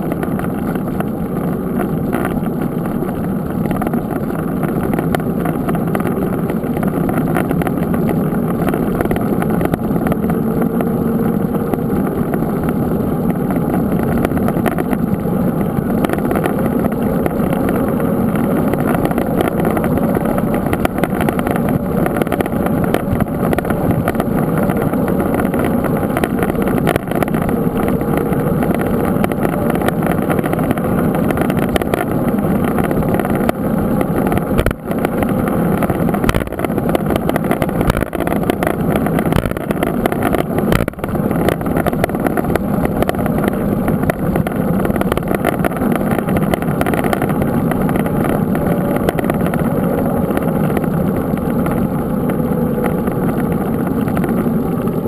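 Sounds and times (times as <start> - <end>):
bike tyre noise: 0.0 - 55.0
wind rumble: 0.0 - 55.0.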